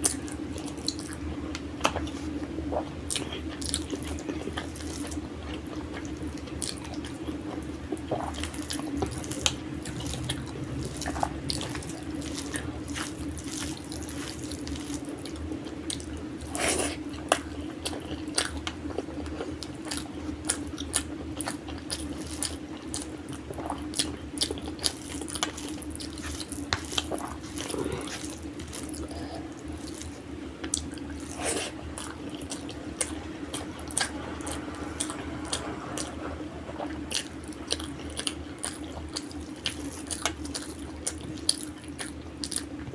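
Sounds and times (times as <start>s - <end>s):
steady low hum: 0.0s - 42.9s
wet chewing and mouth smacking: 37.1s - 42.9s.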